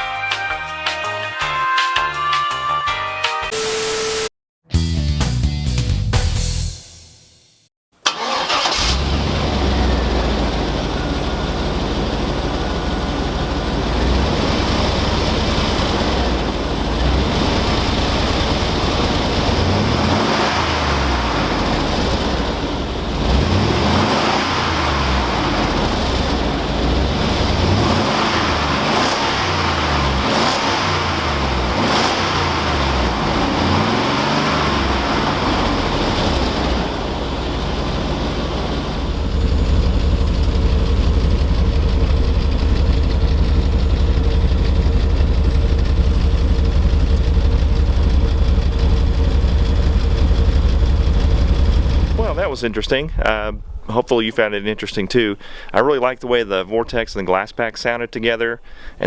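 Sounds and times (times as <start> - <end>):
engine starting: 8.0 - 10.8
engine revving: 8.0 - 54.0
engine idling: 8.0 - 55.7.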